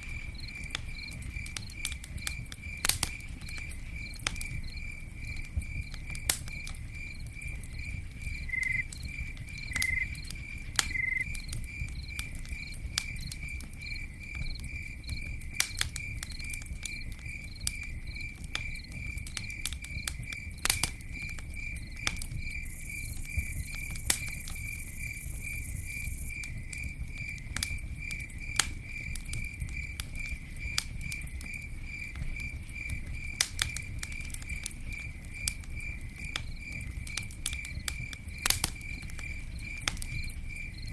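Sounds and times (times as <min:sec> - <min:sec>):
campfire crackling and popping: 0:00.0 - 0:40.9
insect chirping: 0:03.4 - 0:15.3, 0:20.2 - 0:27.4.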